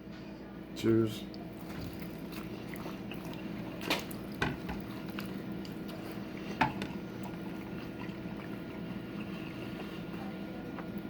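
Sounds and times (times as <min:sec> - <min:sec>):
steady low hum: 0:00.0 - 0:11.0
people chewing: 0:01.3 - 0:11.0.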